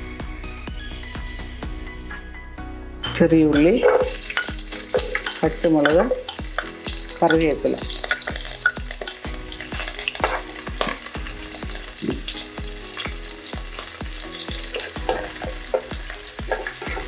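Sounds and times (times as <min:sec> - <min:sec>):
food sizzling in hot oil: 0:03.6 - 0:17.0
spatula scraping and knocking pan: 0:03.6 - 0:17.0.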